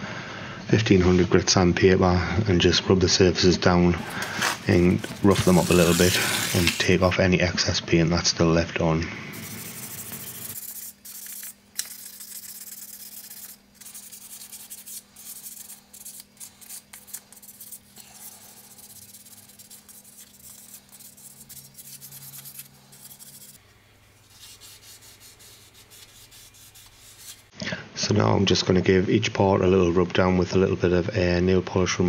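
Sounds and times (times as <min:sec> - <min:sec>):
sandpaper rubbing on metal: 0:04.0 - 0:07.1, 0:09.3 - 0:23.6, 0:24.2 - 0:27.5.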